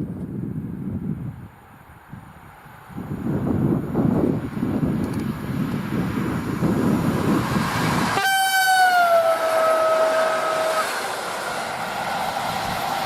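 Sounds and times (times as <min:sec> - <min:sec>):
train rumbling past: 0:02.0 - 0:13.0
train horn blast: 0:08.1 - 0:11.1.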